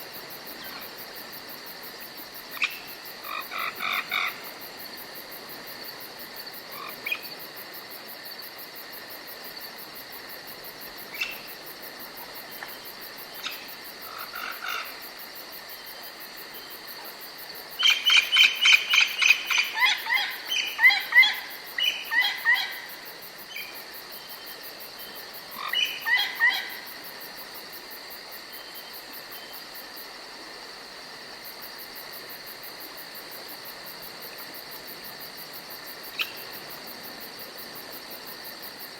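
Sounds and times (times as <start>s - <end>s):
high insect trill: 0.0s - 38.9s
rapid short frog or bird calls: 2.5s - 4.5s, 13.4s - 15.0s, 17.8s - 23.8s, 25.5s - 27.0s, 36.1s - 36.6s.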